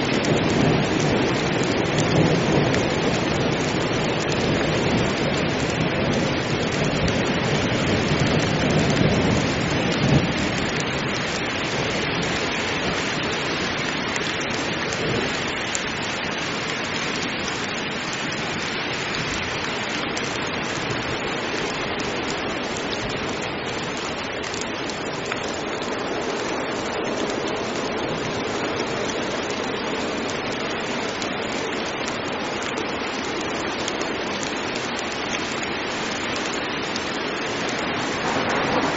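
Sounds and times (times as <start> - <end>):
low thunder rumble: 0.0 - 12.3, 37.5 - 38.9
heavy rain: 0.0 - 38.9.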